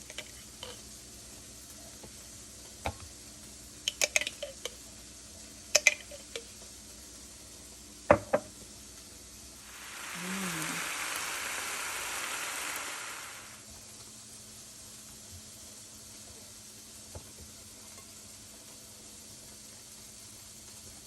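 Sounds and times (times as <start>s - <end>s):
faint steady hum: 9.6s - 13.6s.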